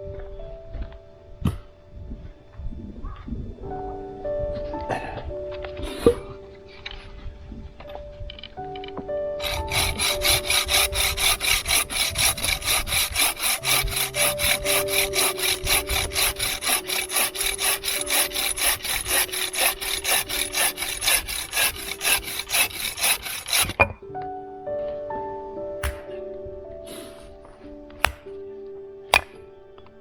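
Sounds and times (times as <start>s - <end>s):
hand saw cutting wood: 9.4s - 23.9s, 25.8s - 26.1s.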